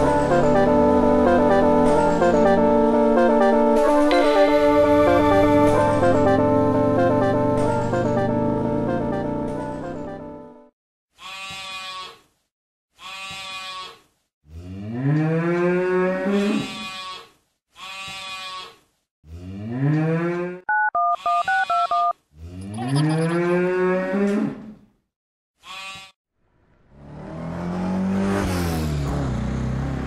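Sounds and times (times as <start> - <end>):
telephone keypad dialing tones: 20.7 - 22.1.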